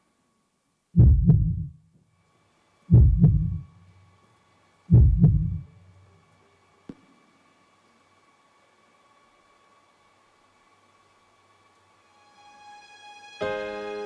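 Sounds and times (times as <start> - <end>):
heartbeat thumps: 1.0 - 1.8, 2.9 - 3.7, 4.9 - 5.8.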